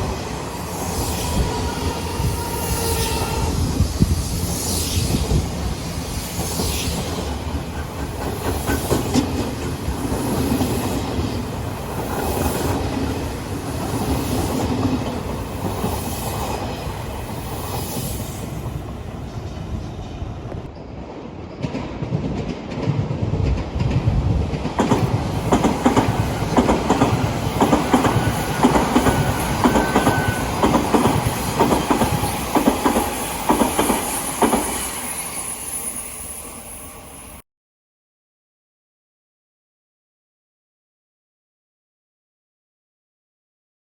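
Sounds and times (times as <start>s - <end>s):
electric trains passing: 0.0s - 37.4s
wheels clacking over rail joints: 21.5s - 34.8s.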